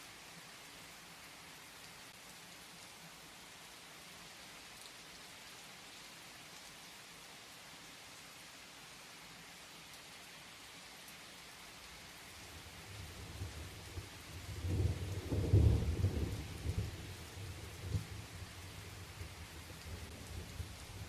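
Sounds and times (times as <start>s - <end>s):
steady rain falling: 0.0s - 21.0s
thunder rumbling: 14.5s - 18.1s.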